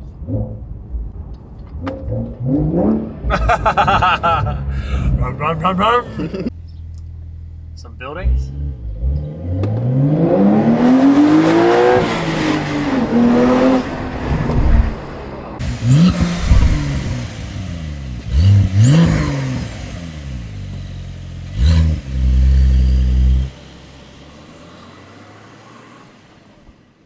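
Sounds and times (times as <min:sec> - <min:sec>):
sports car engine revving: 0:00.1 - 0:26.7.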